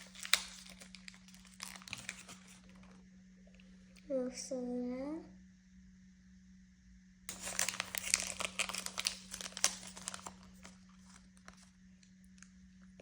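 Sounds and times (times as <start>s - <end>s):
plastic packaging crackling: 0.0s - 3.0s, 7.3s - 11.7s.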